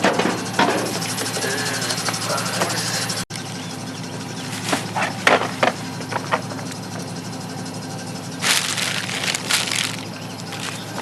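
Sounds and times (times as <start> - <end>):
scrap metal knocks and clanks: 0.0 - 2.8
steady low hum: 0.0 - 11.0
scraping rustle: 8.4 - 11.0.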